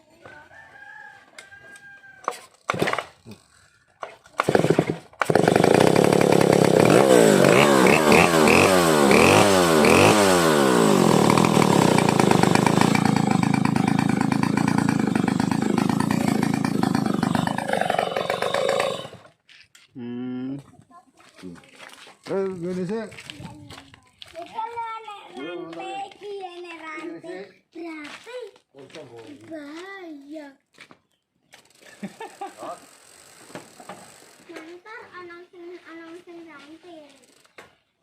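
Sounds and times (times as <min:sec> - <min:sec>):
chainsaw starting and revving: 0:02.5 - 0:19.4, 0:31.5 - 0:34.6.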